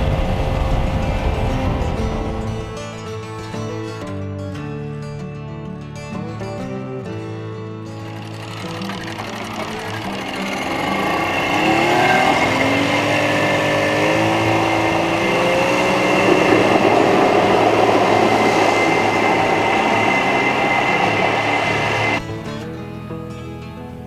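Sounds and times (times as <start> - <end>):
outboard engine speeding up: 0.0 - 2.8, 8.0 - 22.2.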